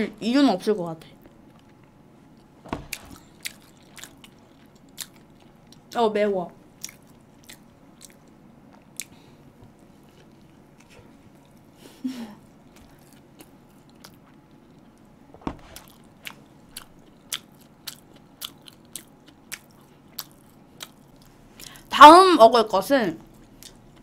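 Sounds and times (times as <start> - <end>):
chewing and biting sandwich: 1.2 - 5.9, 6.8 - 11.7, 12.6 - 21.3.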